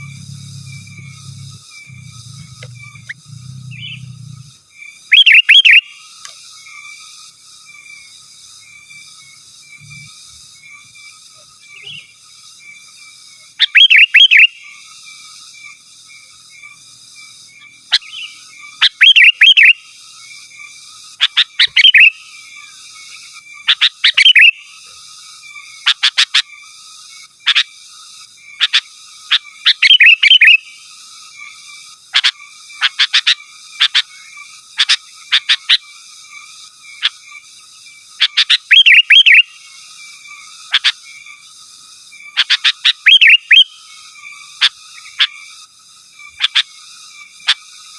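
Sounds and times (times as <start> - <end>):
bulbul singing bubbly phrases: 0.0 - 4.5
faint background trill: 0.0 - 5.7.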